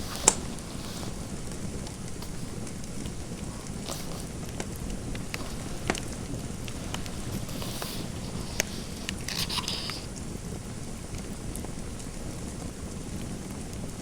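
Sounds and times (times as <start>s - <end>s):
pen scratching on paper: 0.0s - 1.5s, 2.2s - 2.7s, 3.4s - 4.4s, 5.0s - 10.1s
fire crackling and popping: 0.0s - 14.0s.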